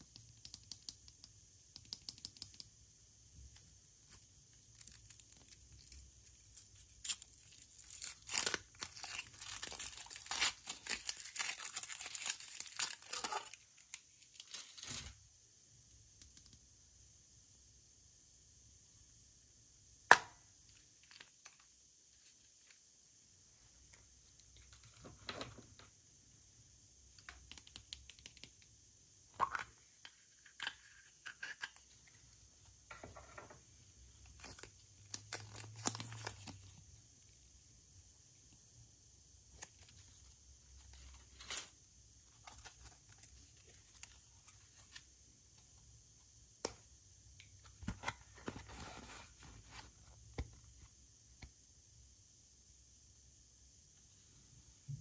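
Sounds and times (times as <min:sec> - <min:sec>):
packaging crinkling: 0:06.6 - 0:14.9
packaging tearing: 0:06.9 - 0:13.6.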